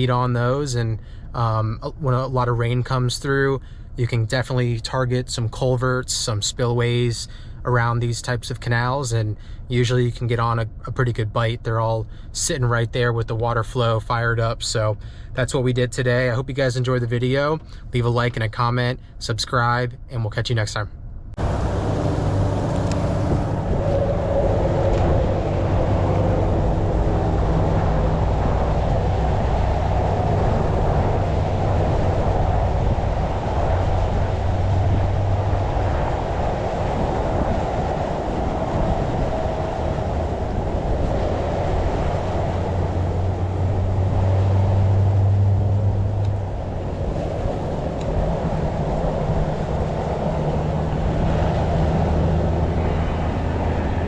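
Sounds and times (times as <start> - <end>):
low engine-like drone: 0.0 - 19.4, 20.0 - 54.0.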